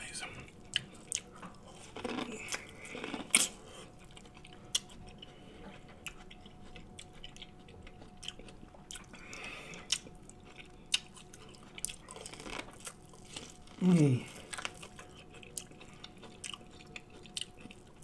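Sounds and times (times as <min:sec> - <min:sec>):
chewing corn on the cob: 0:00.4 - 0:18.0.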